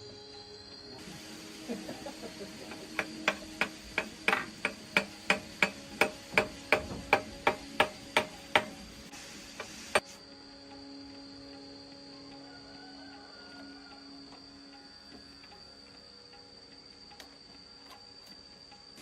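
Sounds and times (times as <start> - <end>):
hammer blows: 2.6 - 10.2.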